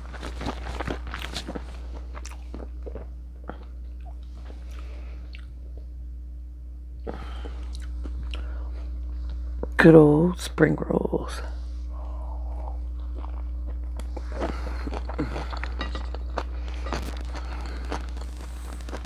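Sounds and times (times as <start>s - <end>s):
low hum: 0.0s - 19.0s
chewing with wet mouth clicks: 1.2s - 5.6s, 7.6s - 8.5s, 12.5s - 19.0s.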